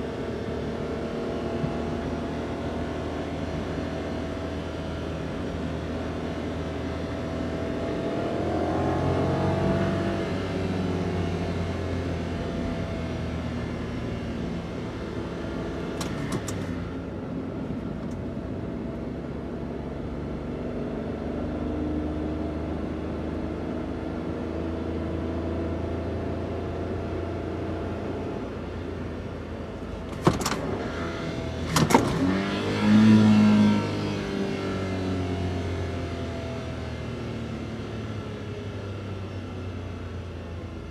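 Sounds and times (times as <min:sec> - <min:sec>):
van engine running: 0:11.7 - 0:20.7, 0:27.5 - 0:40.9.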